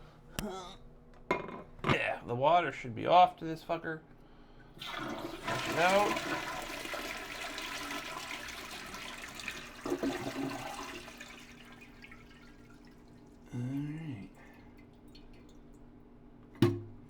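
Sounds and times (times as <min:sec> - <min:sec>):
toilet flushing: 0:04.8 - 0:13.4.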